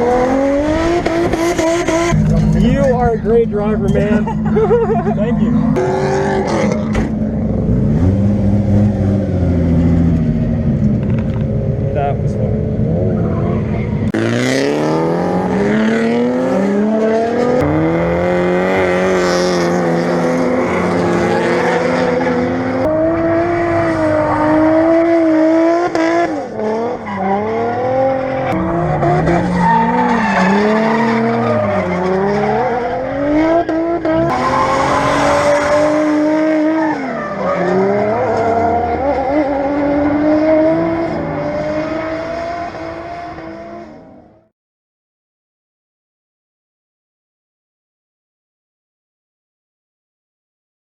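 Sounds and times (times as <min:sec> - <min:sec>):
car engine revving hard: 0:00.0 - 0:10.2, 0:14.1 - 0:44.2
tyres squealing on pavement: 0:28.4 - 0:32.9, 0:34.3 - 0:35.7.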